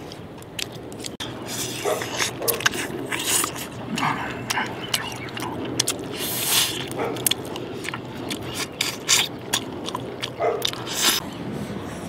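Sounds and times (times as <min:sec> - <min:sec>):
person gnawing and crunching: 0:00.0 - 0:11.2.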